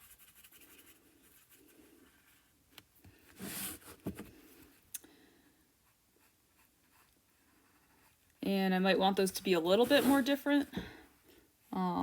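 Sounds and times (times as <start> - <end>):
brush mixing paint on palette: 0.0 - 2.6, 5.8 - 10.7.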